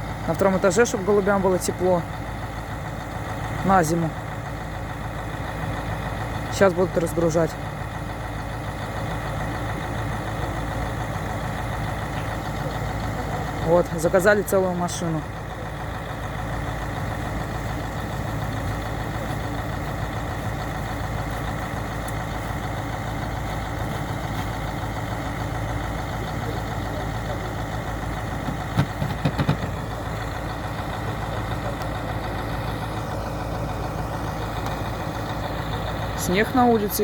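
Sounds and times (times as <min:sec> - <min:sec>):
truck engine idling: 0:00.0 - 0:37.0
sharp knocks: 0:28.4 - 0:29.8.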